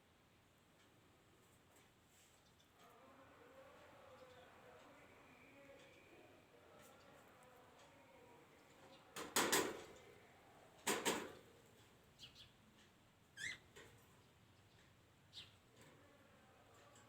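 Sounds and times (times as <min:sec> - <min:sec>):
thin high bird chirps: 0:13.4 - 0:13.6
harsh bird calls: 0:13.4 - 0:13.7.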